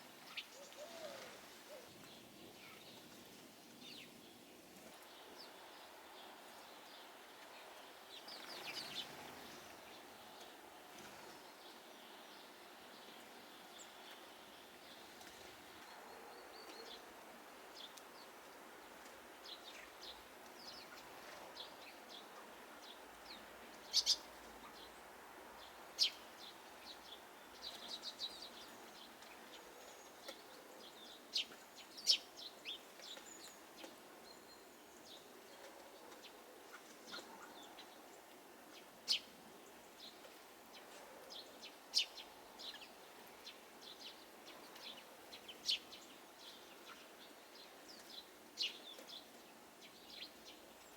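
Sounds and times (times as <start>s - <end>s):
faint outdoor hiss: 0.0s - 50.9s
small birds chirping: 19.4s - 50.9s.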